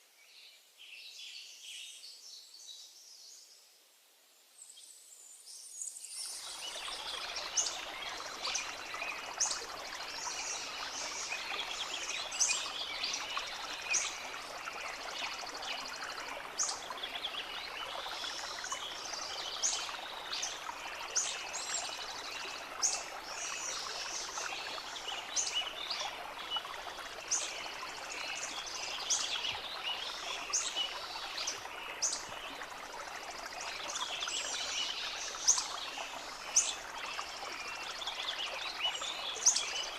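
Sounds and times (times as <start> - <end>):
flowing stream: 6.0 - 39.9.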